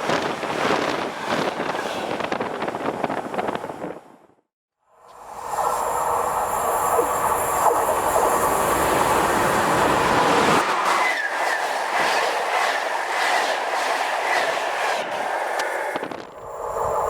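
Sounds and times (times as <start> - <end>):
train rolling rumble: 5.3 - 17.0
wheels squealing: 9.9 - 17.0.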